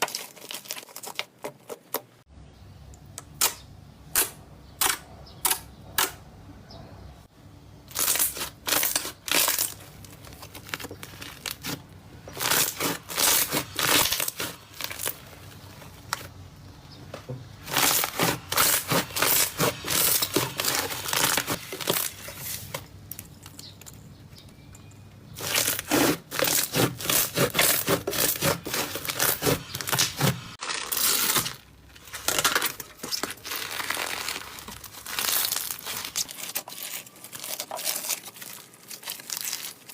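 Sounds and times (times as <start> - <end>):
slime crackling and popping: 0.0 - 1.4, 7.9 - 11.8, 17.7 - 23.9, 25.4 - 39.9.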